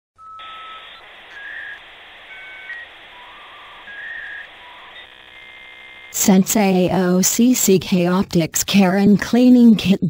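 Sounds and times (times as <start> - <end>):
short whistle-like tones: 0.2 - 5.7
steady hiss: 0.4 - 6.2.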